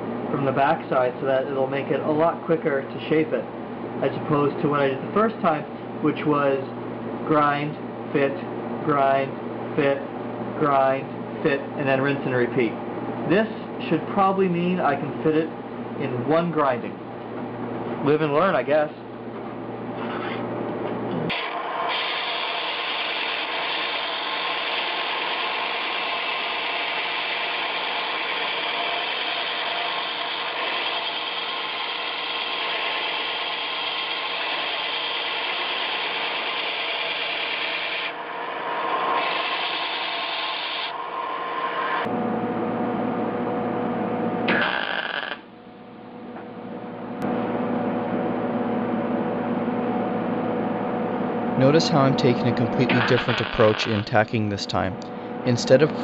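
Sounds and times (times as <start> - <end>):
machine hum: 0.0 - 56.0
grinder rasping on sheet metal: 21.3 - 42.1, 44.5 - 45.4, 52.9 - 54.0.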